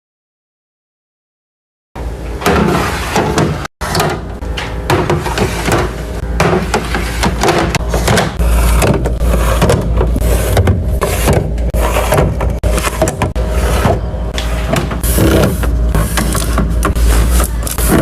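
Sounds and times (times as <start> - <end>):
containers clacking and knocking: 3.4 - 13.4.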